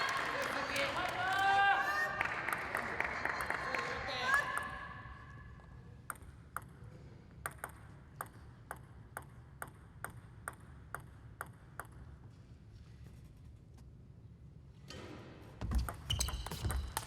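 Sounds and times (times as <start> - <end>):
table tennis ball bouncing: 6.0 - 12.4, 15.6 - 17.0.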